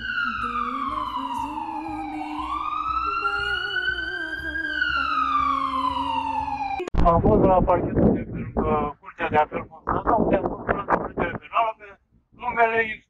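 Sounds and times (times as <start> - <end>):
siren wailing: 0.0 - 8.8
low pulsing beat: 6.8 - 11.5.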